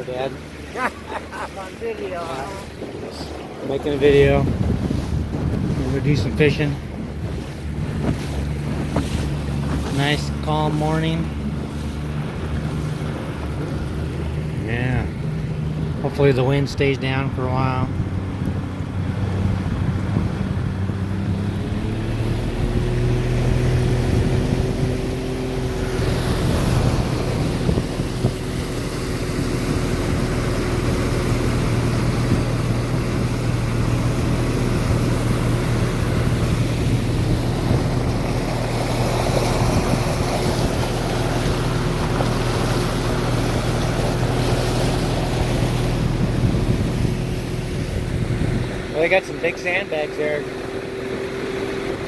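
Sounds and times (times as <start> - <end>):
boat engine running: 0.0 - 52.0
water rushing past hull: 0.0 - 52.0
wind on microphone: 1.8 - 49.2.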